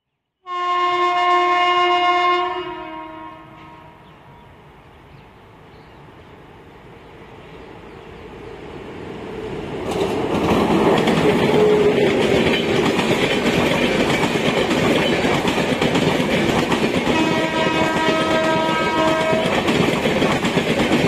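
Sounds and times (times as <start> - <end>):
train wheels clattering over rails: 9.7 - 21.0.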